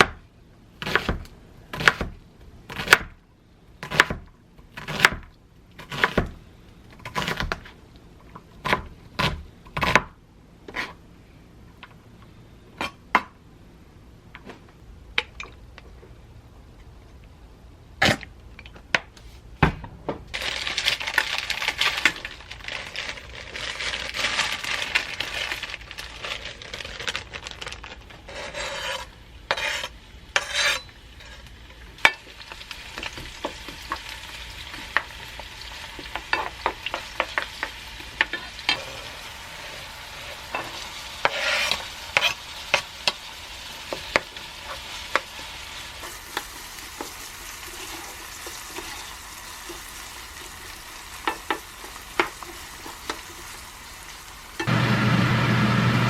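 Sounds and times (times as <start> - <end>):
food sizzling in frying pan: 29.6 - 56.0.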